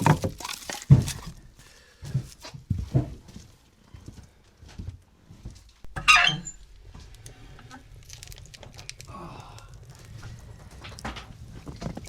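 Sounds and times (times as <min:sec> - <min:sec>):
irregular knocks and thumps: 0:00.0 - 0:01.4.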